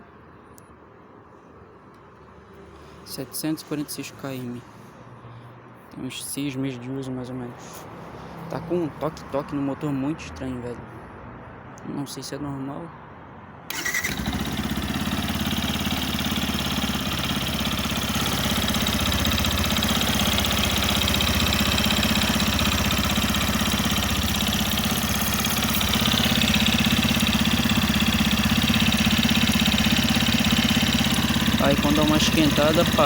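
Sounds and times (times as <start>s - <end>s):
motorcycle engine idling: 13.7s - 33.0s
rhythmic engine tapping: 13.7s - 33.0s.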